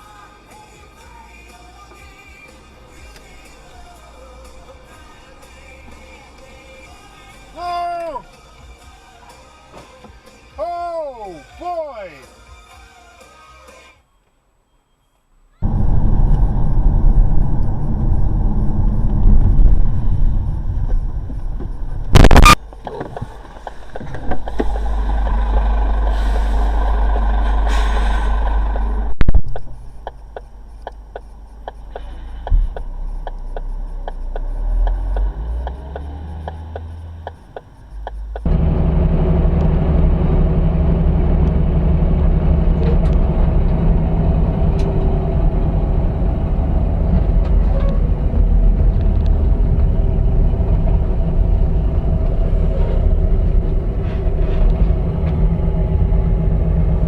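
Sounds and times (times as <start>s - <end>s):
vehicle engine and road noise: 0.0s - 10.6s, 15.3s - 57.0s.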